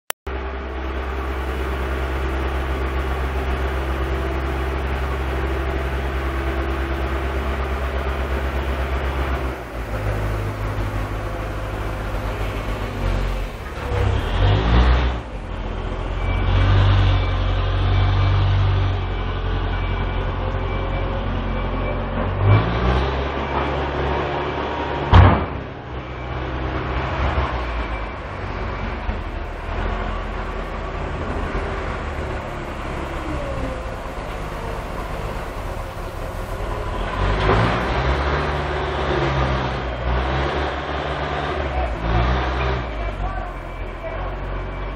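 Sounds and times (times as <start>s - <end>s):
heavy diesel engines revving: 0.3s - 44.9s
sharp knock: 25.1s - 25.7s.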